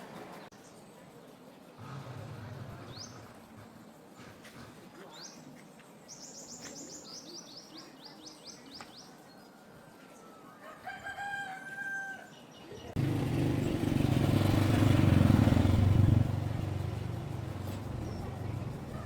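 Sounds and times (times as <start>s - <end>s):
small bird chirping: 5.0s - 9.6s, 12.2s - 19.0s
rooster crowing: 9.4s - 12.4s.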